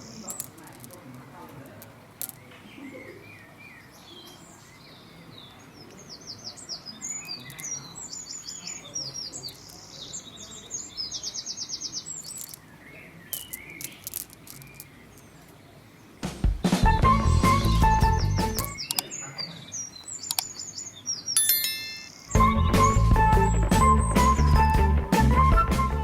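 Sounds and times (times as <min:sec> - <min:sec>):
small birds chirping: 0:00.0 - 0:16.2, 0:17.4 - 0:24.8
sharp clicks: 0:18.4 - 0:19.1, 0:20.3 - 0:20.6.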